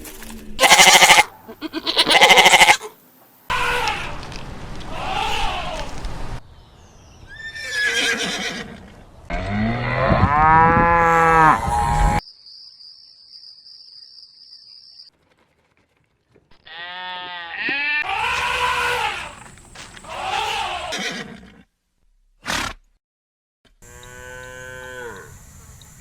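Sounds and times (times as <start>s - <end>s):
cow mooing: 9.4s - 12.2s, 23.8s - 25.3s.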